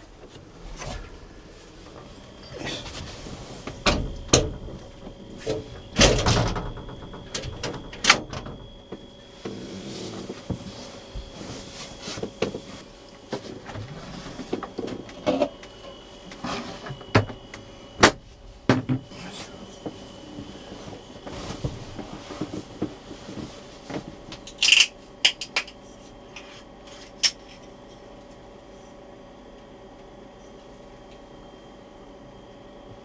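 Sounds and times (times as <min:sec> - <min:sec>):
clunks and knocks: 0:01.9 - 0:09.1.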